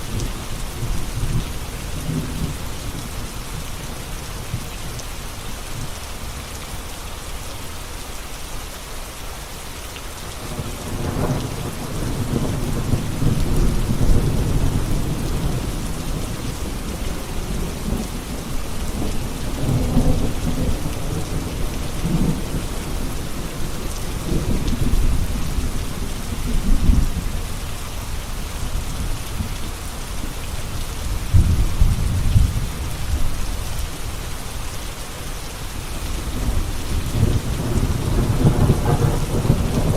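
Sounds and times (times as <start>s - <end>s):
steady rain hiss: 0.0s - 39.9s
low rolling thunder: 10.4s - 27.3s, 31.2s - 33.4s, 36.1s - 39.9s.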